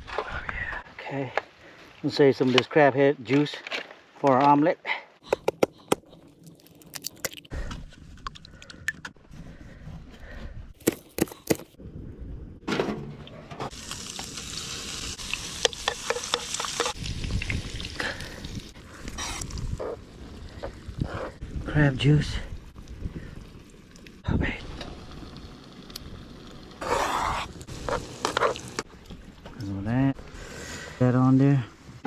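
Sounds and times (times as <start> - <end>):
food sizzling in pan: 13.7 - 18.0.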